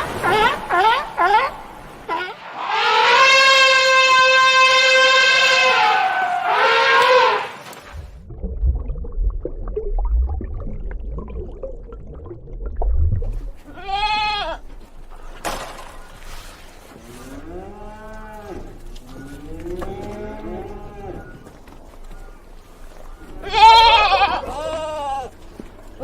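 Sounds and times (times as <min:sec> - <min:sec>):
low animal call: 0:00.1 - 0:07.6, 0:16.2 - 0:25.6
low rumble: 0:07.9 - 0:13.7
animal bleating: 0:13.7 - 0:14.6, 0:23.4 - 0:25.4.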